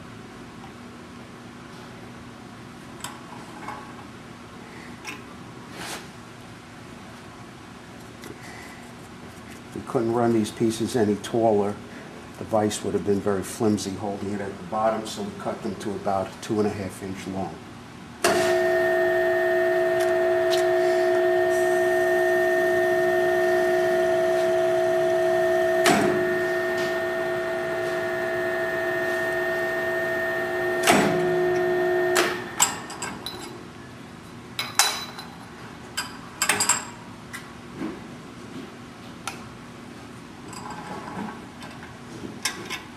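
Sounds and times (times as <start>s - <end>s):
tapping machine motor hum: 18.3s - 32.6s.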